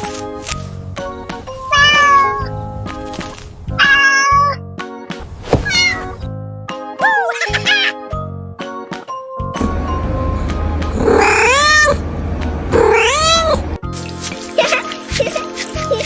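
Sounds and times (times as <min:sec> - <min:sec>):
background music with steady beat: 0:00.0 - 0:05.4, 0:06.2 - 0:11.2, 0:12.0 - 0:12.8
cartoon animal meow-like cries: 0:05.7 - 0:06.1, 0:07.0 - 0:08.0, 0:12.8 - 0:13.6.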